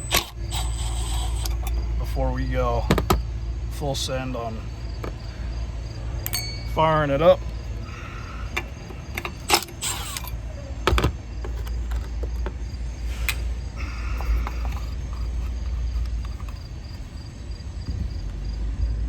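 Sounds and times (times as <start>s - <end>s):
steady low rumble: 0.4s - 19.0s
sharp metal clicks and clinks: 6.2s - 17.0s.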